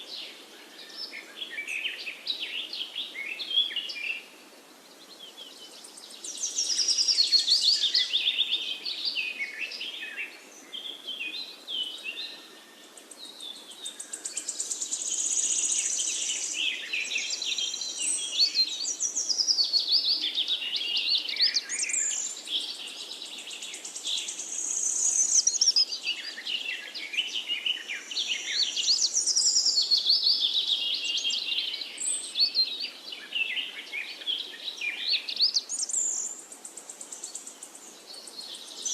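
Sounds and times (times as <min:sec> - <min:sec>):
faint background hiss: 0:00.0 - 0:38.9
songbirds chorus: 0:00.0 - 0:38.9.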